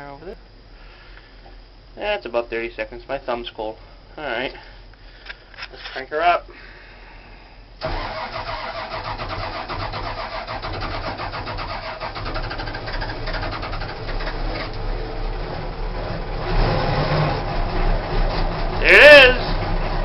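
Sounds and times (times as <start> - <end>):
diesel engine cranking: 7.8 - 20.0.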